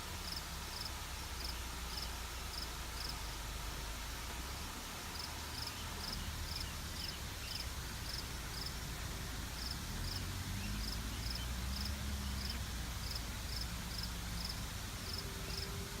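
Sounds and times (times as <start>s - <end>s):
cricket chirping: 0.2s - 3.2s, 5.1s - 8.7s, 10.8s - 14.5s, 15.1s - 15.6s.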